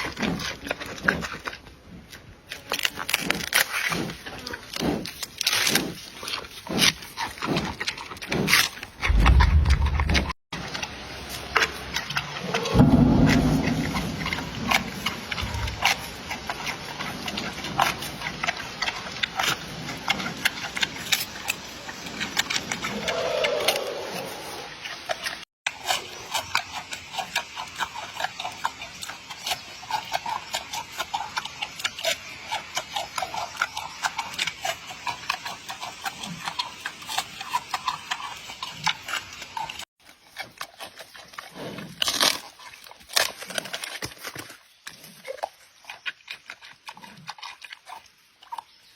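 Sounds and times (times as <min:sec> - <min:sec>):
panda chewing and crunching food: 0:00.0 - 0:48.9
louder sound: 0:12.4 - 0:15.7.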